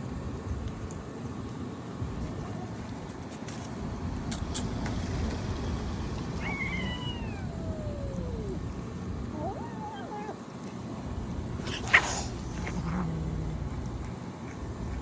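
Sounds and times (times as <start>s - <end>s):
low background rumble: 0.0s - 15.0s
cat meowing: 6.4s - 10.4s, 11.7s - 14.0s.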